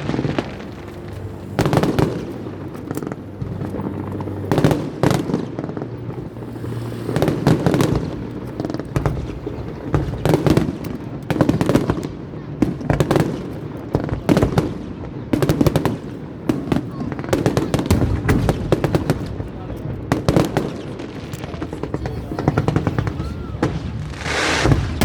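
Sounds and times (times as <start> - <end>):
fireworks shells bursting: 22.4 - 25.0.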